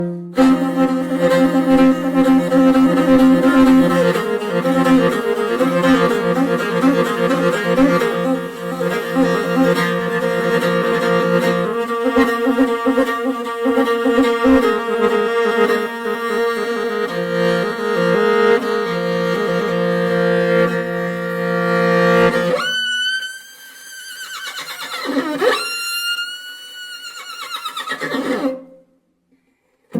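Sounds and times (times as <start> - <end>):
bowed string music: 0.0 - 24.4
horse whinnying: 24.2 - 25.4, 26.9 - 28.5.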